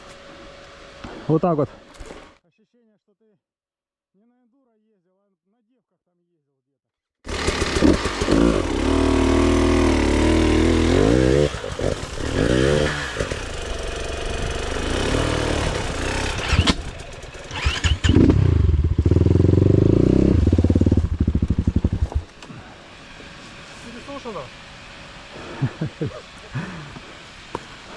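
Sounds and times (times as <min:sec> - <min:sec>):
motorcycle engine revving: 0:07.3 - 0:22.4.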